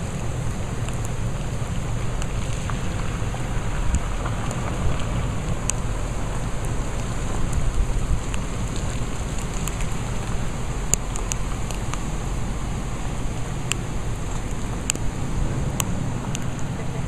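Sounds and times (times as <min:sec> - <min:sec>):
drip-like ticks: 0:00.0 - 0:16.7
water rushing: 0:00.0 - 0:17.0
wind rumble on microphone: 0:00.0 - 0:17.0.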